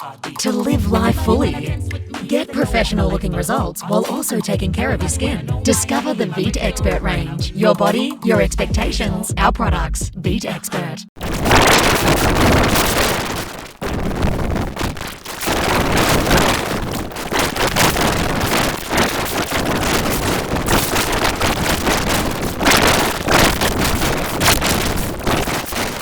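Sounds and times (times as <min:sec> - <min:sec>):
harsh noise effect: 0:11.2 - 0:26.0.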